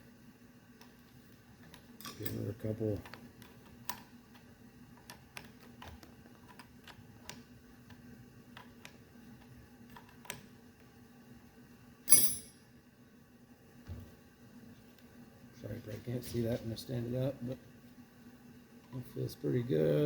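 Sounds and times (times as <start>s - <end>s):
sharp metal clink: 12.1s - 12.6s.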